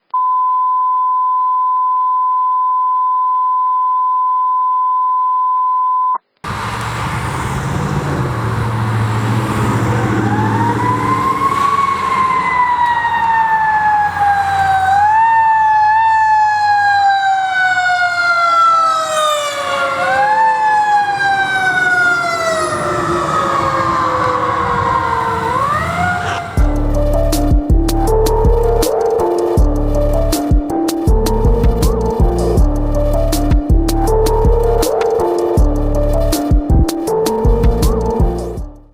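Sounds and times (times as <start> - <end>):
truck engine rumble: 6.4 - 38.6
fire truck siren: 6.5 - 30.0.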